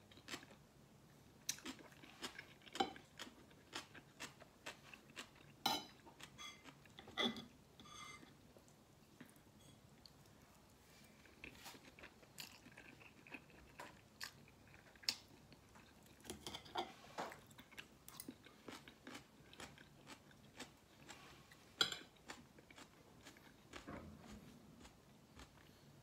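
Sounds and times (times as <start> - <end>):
wet chewing: 11.2 - 16.4, 22.2 - 25.8.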